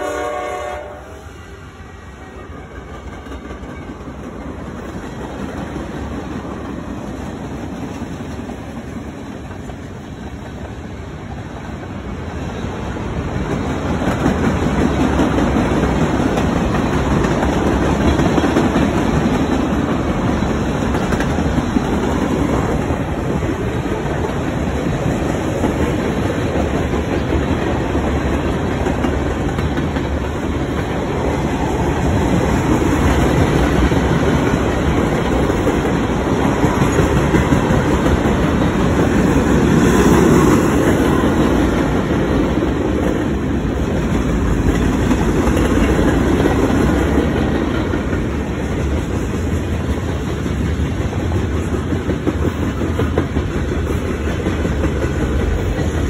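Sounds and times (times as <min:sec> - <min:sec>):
locomotive horn: 0:00.0 - 0:04.0
train wheels rumbling on rails: 0:00.0 - 0:56.0.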